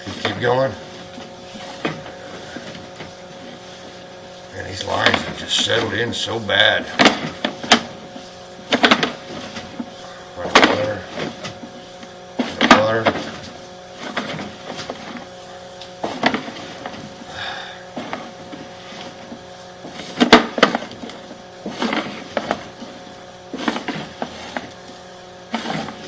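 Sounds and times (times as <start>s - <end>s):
cable knocking and clattering in pipe: 4.9s - 8.0s, 8.7s - 11.8s, 12.4s - 15.2s.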